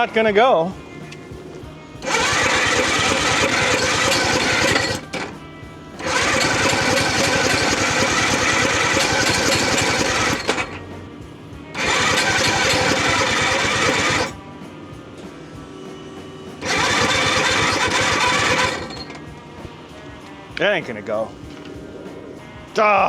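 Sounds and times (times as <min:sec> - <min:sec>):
rotary engine cranking: 0:00.9 - 0:11.1, 0:11.7 - 0:14.4, 0:16.6 - 0:19.8.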